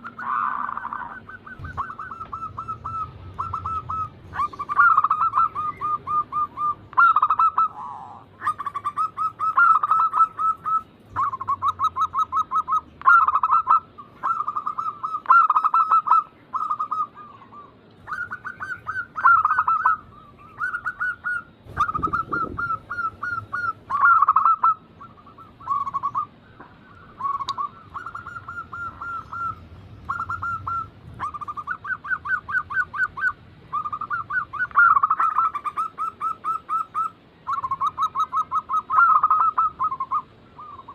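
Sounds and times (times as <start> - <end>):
doves cooing: 0.0 - 40.9.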